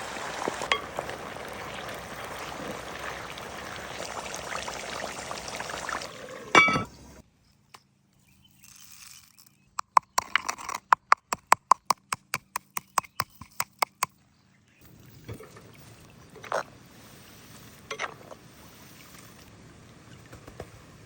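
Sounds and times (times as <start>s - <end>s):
faint steady hiss: 14.8s - 21.0s.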